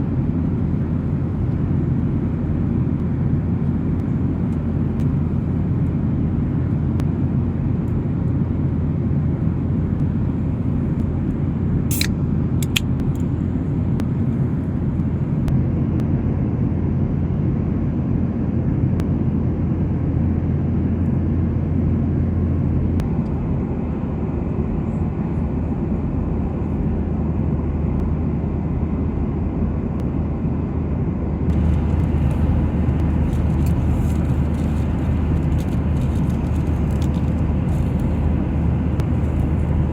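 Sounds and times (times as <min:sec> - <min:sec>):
airplane engines rumbling in cabin: 0:00.0 - 0:39.9
sharp clicks: 0:11.9 - 0:13.2.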